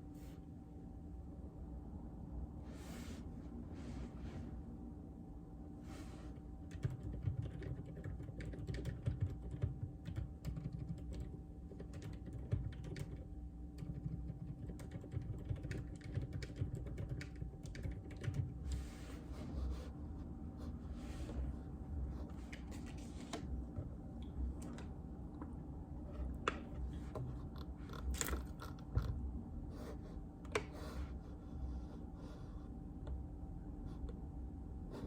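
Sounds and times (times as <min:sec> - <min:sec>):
typing on mechanical keyboard: 0:06.7 - 0:18.5.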